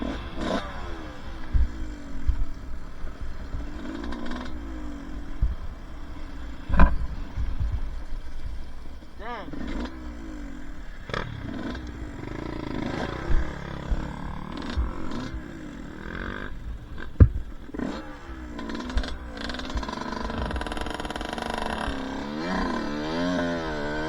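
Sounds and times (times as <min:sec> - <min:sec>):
dirt bike engine revving: 0:00.0 - 0:24.0
sharp knocks: 0:17.2 - 0:17.6.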